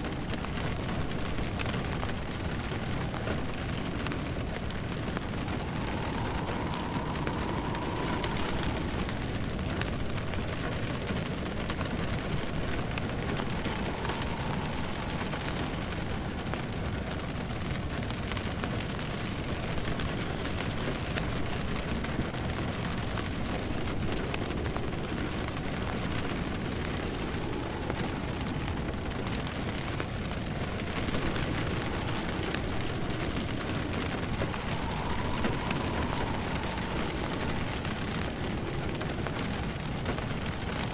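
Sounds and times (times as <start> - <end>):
rain pattering: 0.0 - 40.9
fireplace crackling: 0.4 - 17.5, 23.7 - 40.9
faint tone: 4.4 - 10.6, 12.2 - 17.3, 31.2 - 38.8.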